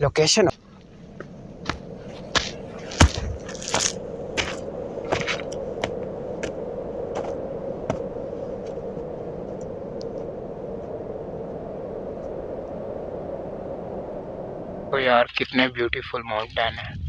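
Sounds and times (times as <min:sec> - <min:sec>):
background hiss: 0:00.0 - 0:16.4
footsteps crunching on trail: 0:00.6 - 0:08.9.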